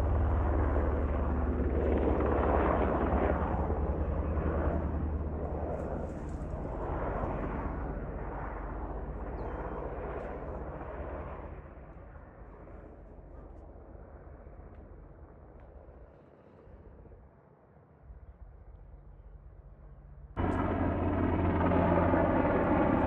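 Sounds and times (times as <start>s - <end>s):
helicopter rotor and turbine: 0.0s - 17.5s, 18.1s - 23.0s.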